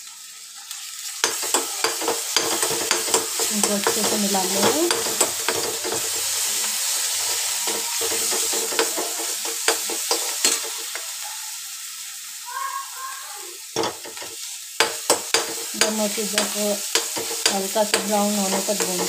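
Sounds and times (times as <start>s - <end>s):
paste sizzling in hot oil: 0.0s - 19.0s
metal ladle scraping a pan: 1.3s - 11.0s.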